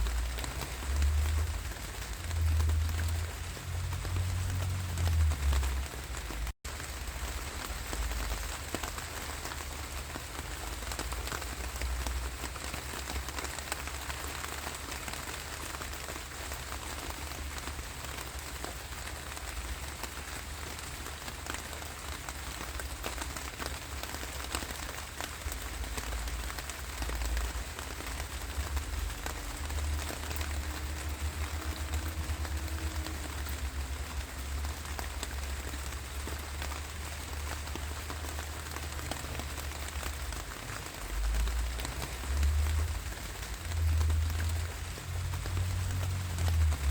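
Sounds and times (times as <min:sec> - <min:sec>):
rain falling: 0:00.0 - 0:46.9.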